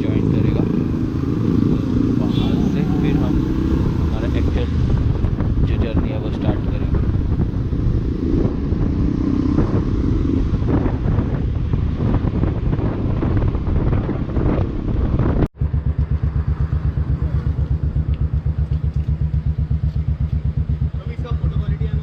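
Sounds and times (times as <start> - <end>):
wind noise: 0.0 - 20.8
motorcycle riding on road: 0.0 - 22.0
motorcycle engine idling: 15.6 - 22.0.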